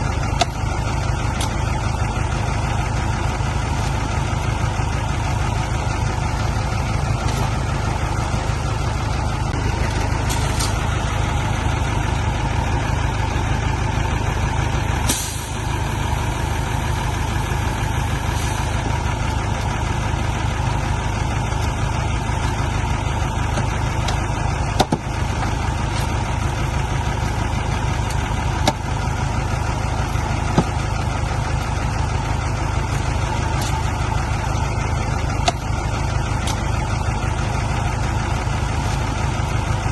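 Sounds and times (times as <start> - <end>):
diesel engine rumbling: 0.0 - 39.9
burst of hiss: 15.1 - 15.6.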